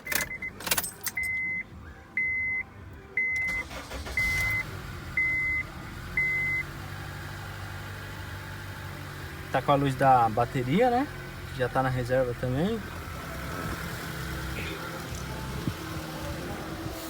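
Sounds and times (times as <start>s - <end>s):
car warning chime beeping: 0.0s - 6.8s.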